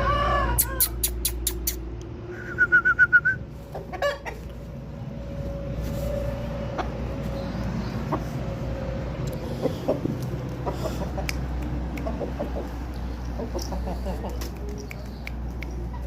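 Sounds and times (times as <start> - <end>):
harsh chicken call: 0.0 - 1.6
chickens clucking: 3.6 - 4.7, 6.7 - 16.0.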